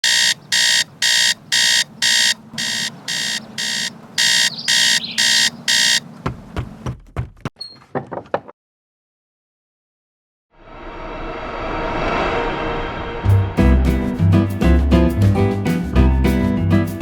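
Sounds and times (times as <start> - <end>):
alarm clock beeping: 0.0 - 6.0.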